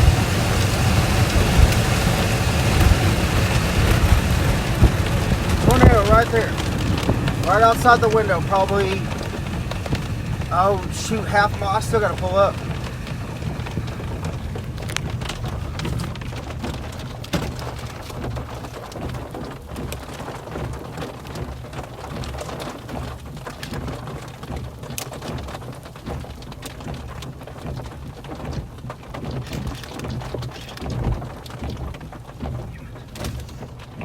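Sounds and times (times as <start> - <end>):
steady low rumble: 0.0 - 19.7
rain hitting car roof and windows: 0.0 - 34.0.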